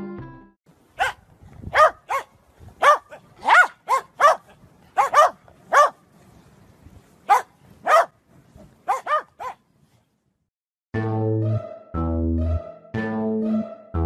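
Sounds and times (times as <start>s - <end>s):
dogs barking: 1.0s - 6.0s, 7.3s - 8.2s, 8.8s - 9.6s.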